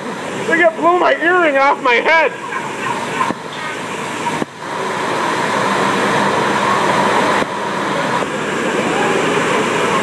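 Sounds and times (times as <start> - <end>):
machinery hum: 0.0 - 10.0
high-pressure water spray: 0.2 - 10.0.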